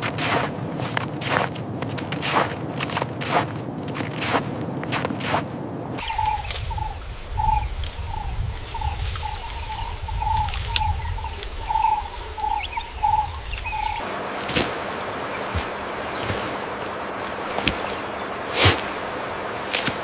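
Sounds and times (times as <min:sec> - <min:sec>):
bird call note: 0:06.0 - 0:14.0
high insect drone: 0:06.0 - 0:14.3.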